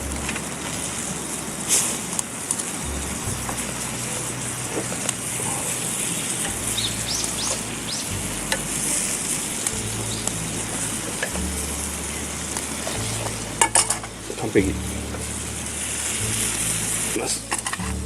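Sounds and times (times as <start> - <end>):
chicken sizzling in sauce: 0.0 - 18.0.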